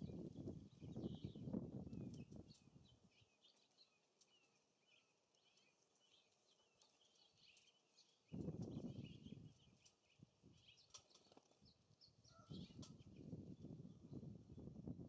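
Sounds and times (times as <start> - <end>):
wind rumbling on microphone: 0.0 - 3.2, 8.3 - 10.8, 11.6 - 15.0
songbirds chirping: 0.0 - 14.9.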